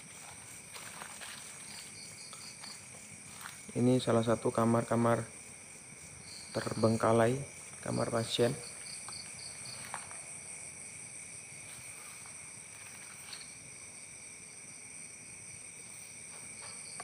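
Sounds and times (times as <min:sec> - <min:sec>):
insects shrilling: 0:00.0 - 0:17.0
faint rustling: 0:11.6 - 0:13.6.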